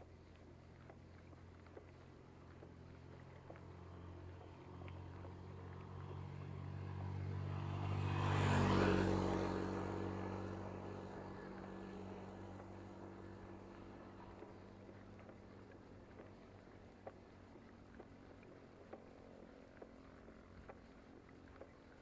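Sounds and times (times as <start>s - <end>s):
vehicle passing by: 2.6s - 16.4s.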